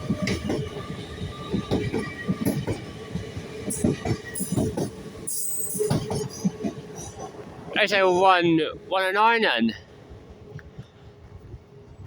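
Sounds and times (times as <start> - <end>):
train wheels clicking over joints: 0.0 - 7.6
electric train whine: 0.0 - 12.0.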